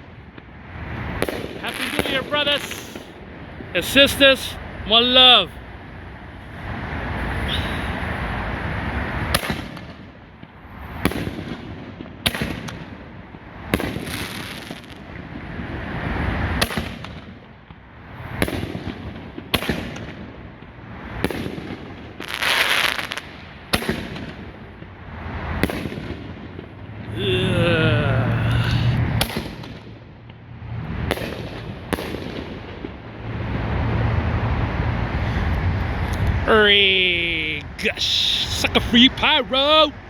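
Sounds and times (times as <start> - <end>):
fireworks bursting: 1.2 - 3.2, 21.2 - 24.4, 36.6 - 40.0
rushing noise: 33.2 - 40.0.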